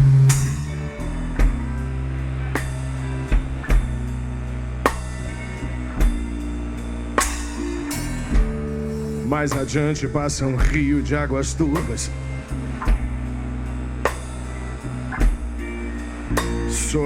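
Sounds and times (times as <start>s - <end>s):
cymbal crash: 0.0s - 1.6s, 4.8s - 10.7s
bass drum and snare hits: 0.0s - 1.8s, 2.6s - 11.0s, 11.8s - 15.7s, 16.3s - 17.0s
blues band playing live: 0.0s - 17.0s.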